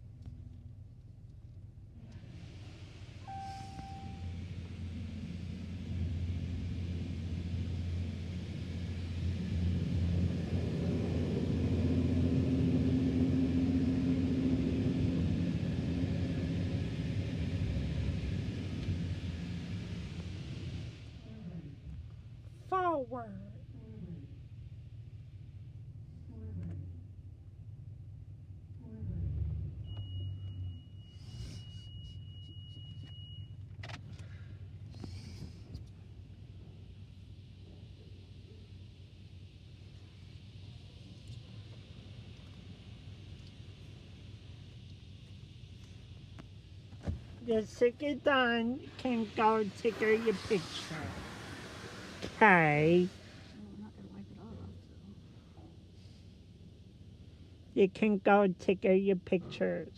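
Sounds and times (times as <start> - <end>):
car wash equipment humming: 1.9 - 26.0, 31.6 - 59.9
thin high whine: 3.2 - 5.0, 47.4 - 56.3
hiss: 36.8 - 54.5
short hissing bursts: 48.8 - 53.6.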